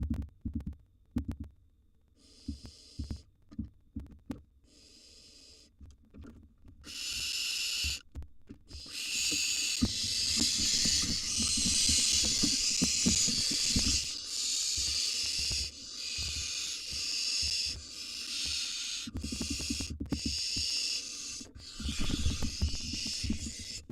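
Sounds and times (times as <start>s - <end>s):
owl nestlings hissing: 2.2s - 3.2s, 4.6s - 5.8s, 6.8s - 8.0s, 8.7s - 23.9s.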